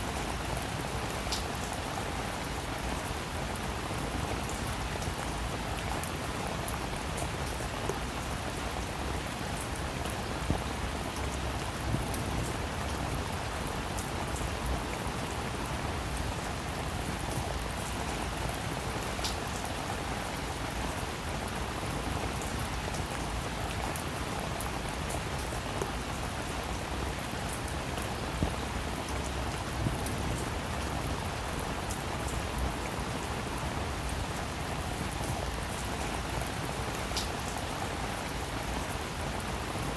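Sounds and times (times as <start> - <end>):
rain falling on a surface: 0.0 - 39.9.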